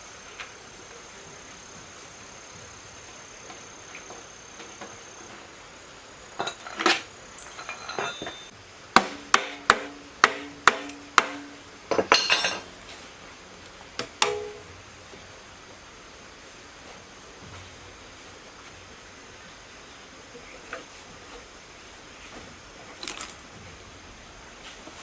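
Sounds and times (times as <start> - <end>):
metal clattering: 6.4 - 13.1, 14.2 - 14.7
hammer striking metal: 7.4 - 12.9, 14.2 - 14.7.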